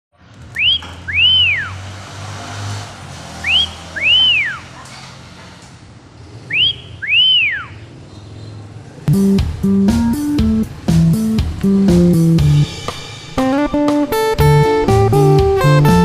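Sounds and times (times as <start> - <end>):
two-note whistled call: 0.6 - 1.7, 6.5 - 7.8.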